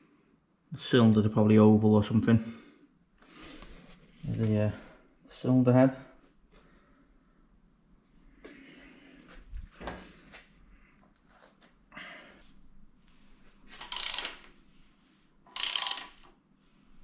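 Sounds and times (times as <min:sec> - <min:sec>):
metal parts and tools clunking: 0:13.7 - 0:14.5.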